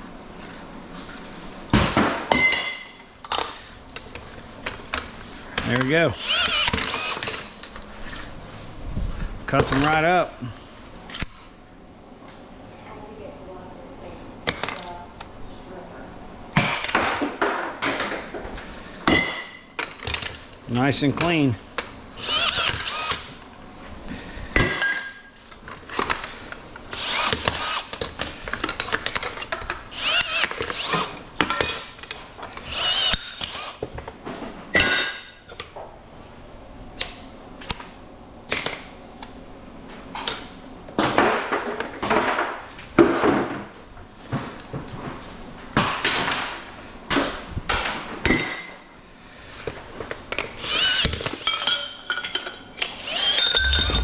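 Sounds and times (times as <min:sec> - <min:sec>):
power tool cutting metal tubing: 0:06.2 - 0:07.5, 0:22.2 - 0:23.4, 0:26.9 - 0:28.0, 0:29.9 - 0:31.7, 0:32.6 - 0:33.8, 0:50.6 - 0:51.4, 0:52.8 - 0:54.0.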